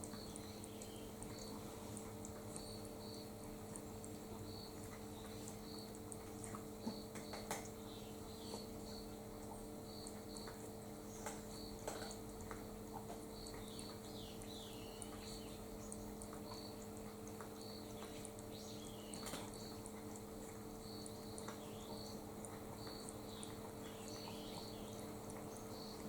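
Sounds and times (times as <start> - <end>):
birds chirping: 0.0 - 1.8, 6.7 - 9.2, 13.0 - 20.0, 20.7 - 26.0
steady low hum: 0.0 - 26.0.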